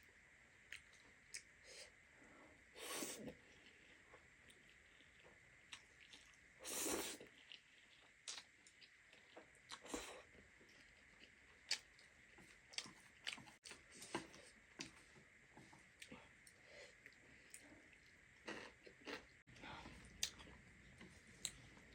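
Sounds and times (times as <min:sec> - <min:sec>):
chewing: 0:03.5 - 0:06.4, 0:07.1 - 0:15.0, 0:16.0 - 0:21.9.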